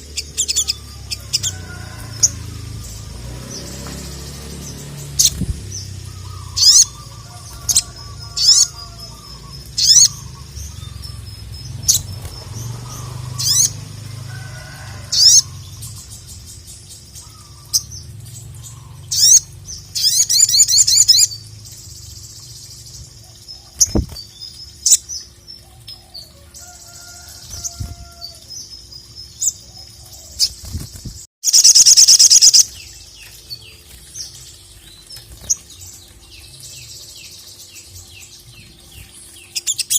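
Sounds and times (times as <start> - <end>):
bird fast trill: 0.0 - 13.8, 31.4 - 33.0.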